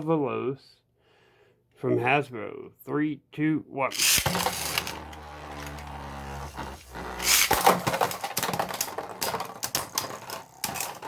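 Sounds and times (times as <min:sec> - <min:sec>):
spinning tops clattering: 0:03.9 - 0:05.8, 0:06.5 - 0:11.0
spinning top launch rush: 0:03.9 - 0:08.9
spinning tops humming: 0:03.9 - 0:09.0.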